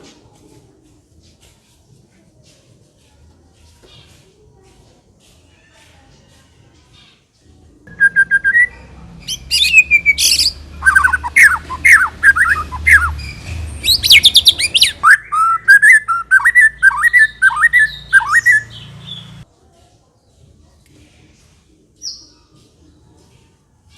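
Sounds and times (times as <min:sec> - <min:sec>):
songbird singing whistled phrases: 0:07.9 - 0:19.4.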